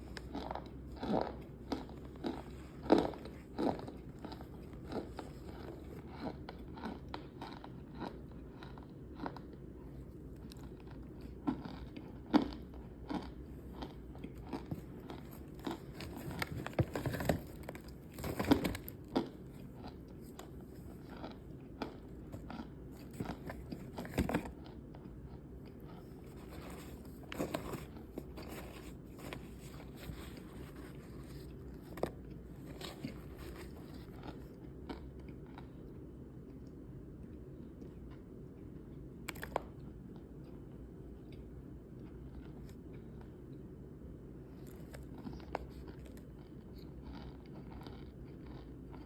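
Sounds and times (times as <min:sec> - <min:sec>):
biting and chewing crunches: 0:00.0 - 0:35.8, 0:44.5 - 0:49.0.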